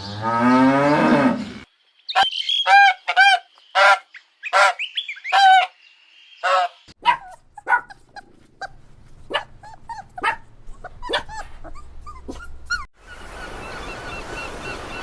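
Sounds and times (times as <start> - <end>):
hissy outdoor background: 0.0 - 8.4, 12.9 - 15.0
dog yipping and whimpering: 7.0 - 12.9.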